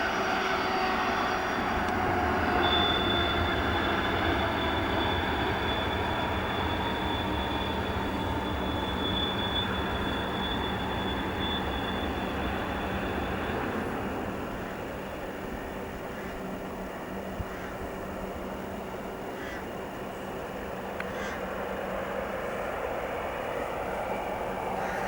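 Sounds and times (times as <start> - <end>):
high thin engine whine: 0.0 - 17.0
jet engines rumbling: 0.0 - 25.0.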